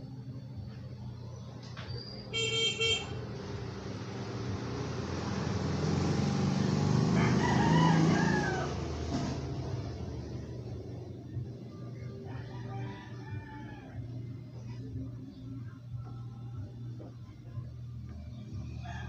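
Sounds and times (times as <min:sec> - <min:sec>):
vehicle passing: 0:03.1 - 0:15.0
rooster crowing: 0:06.9 - 0:09.1, 0:12.0 - 0:14.8, 0:18.7 - 0:19.0.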